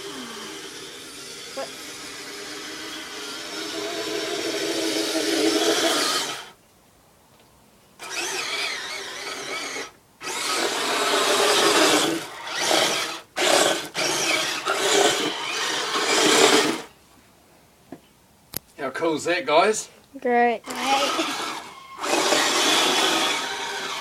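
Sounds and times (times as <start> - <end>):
electric motor whirring: 0.0 - 6.5, 8.0 - 16.9, 20.6 - 24.0.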